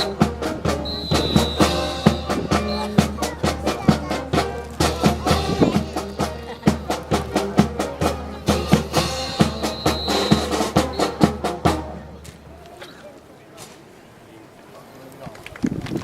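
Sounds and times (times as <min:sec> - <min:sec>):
snare and bass drum beat: 0:00.0 - 0:12.2
brass band playing a march: 0:00.0 - 0:12.6.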